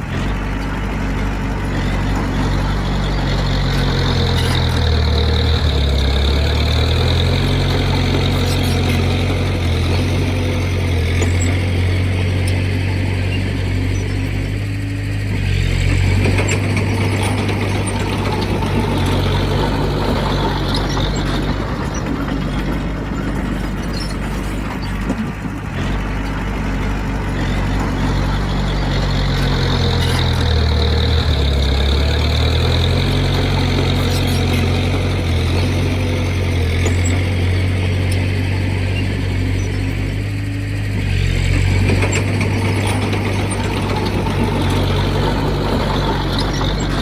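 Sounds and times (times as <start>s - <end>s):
heavy diesel engine running: 0.0s - 47.0s.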